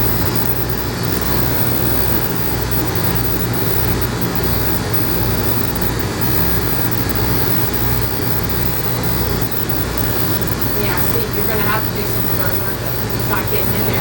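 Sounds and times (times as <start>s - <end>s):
electric clippers buzzing: 0.0s - 14.0s.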